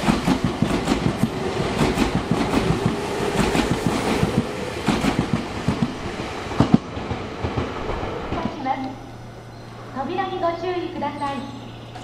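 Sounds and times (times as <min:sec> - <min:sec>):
train wheels clattering on track: 0:00.0 - 0:08.9
train rumble: 0:00.0 - 0:12.0.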